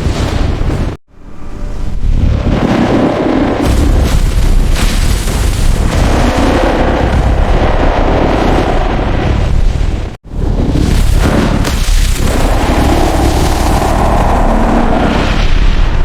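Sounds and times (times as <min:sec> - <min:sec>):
deep rumbling and booming: 0:00.0 - 0:16.0.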